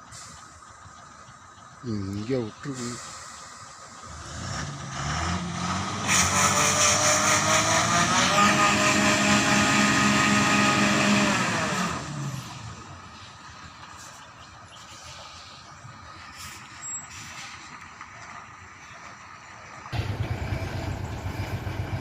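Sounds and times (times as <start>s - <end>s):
truck engine revving: 0.1s - 14.3s, 19.9s - 22.0s.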